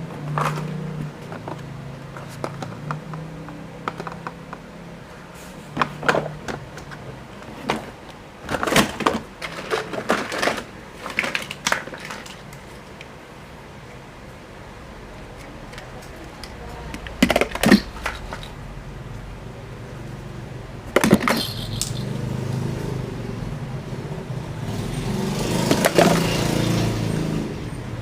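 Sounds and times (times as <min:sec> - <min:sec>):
plastic toy vehicles clattering: 0:00.2 - 0:03.2, 0:05.8 - 0:12.8, 0:15.3 - 0:18.6, 0:20.9 - 0:22.2, 0:25.7 - 0:26.3.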